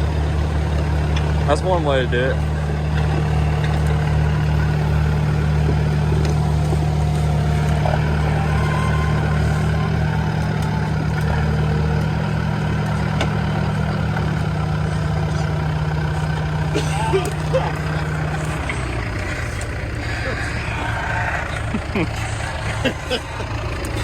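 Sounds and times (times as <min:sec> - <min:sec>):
diesel engine humming steadily: 0:00.0 - 0:24.0.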